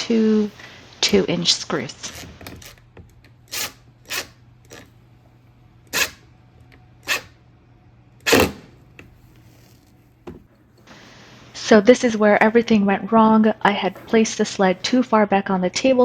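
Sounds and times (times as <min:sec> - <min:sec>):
faint low hum: 0:00.0 - 0:16.0
wood and tools knocking: 0:10.2 - 0:10.5.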